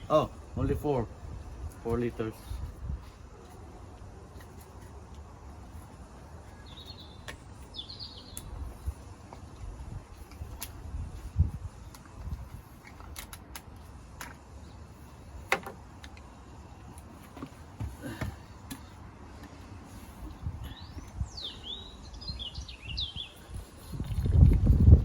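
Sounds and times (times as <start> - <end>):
bird chirping: 6.4 - 8.5, 20.6 - 23.7.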